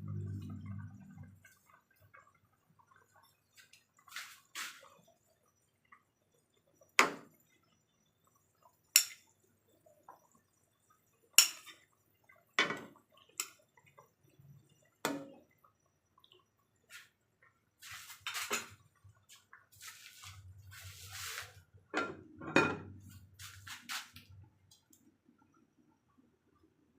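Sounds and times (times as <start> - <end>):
utensils clinking against cookware: 9.0 - 9.2, 11.4 - 11.8.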